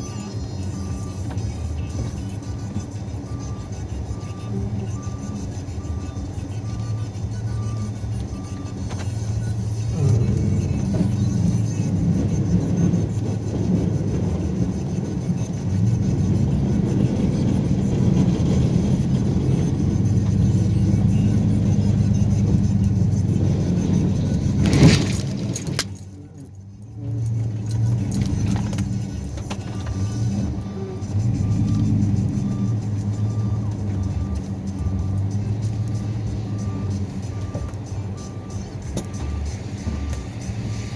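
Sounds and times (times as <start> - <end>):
snowplow engine running: 0.0 - 40.9.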